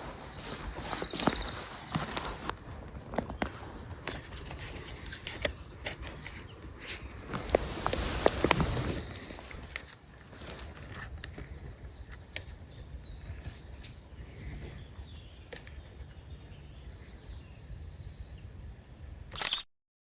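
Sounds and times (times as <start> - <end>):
sharp clicks: 19.3 - 19.6.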